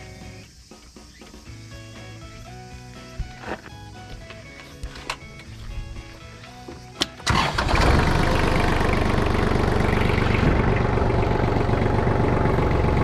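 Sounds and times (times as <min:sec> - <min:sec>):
diesel engine starting and idling: 0:07.0 - 0:13.0.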